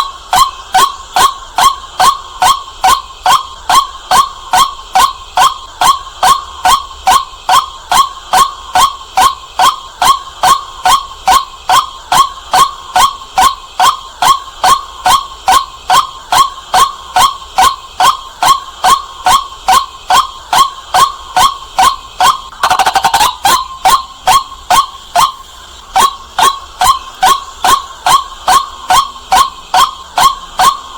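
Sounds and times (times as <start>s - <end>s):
waterhen calling: 22.5s - 30.8s.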